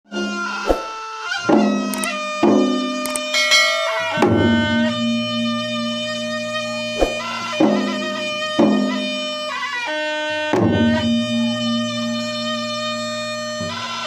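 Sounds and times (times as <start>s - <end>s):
two-headed drums: 1.5s - 5.5s
shrill reed pipe: 3.1s - 7.5s.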